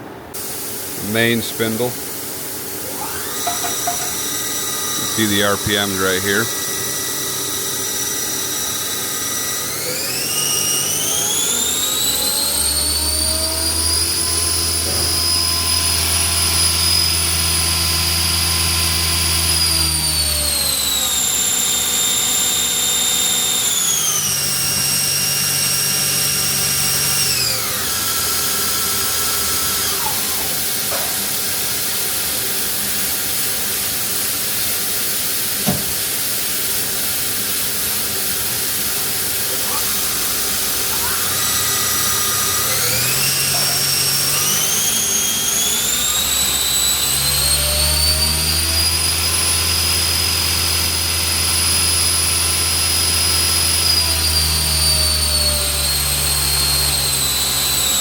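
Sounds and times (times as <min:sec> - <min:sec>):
machine hum: 0:00.0 - 0:52.8
lathe spindle whine: 0:02.8 - 0:58.0.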